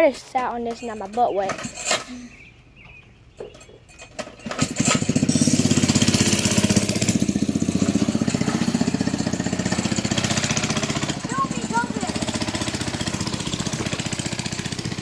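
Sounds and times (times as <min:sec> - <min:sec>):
small engine running: 0:04.4 - 0:15.0.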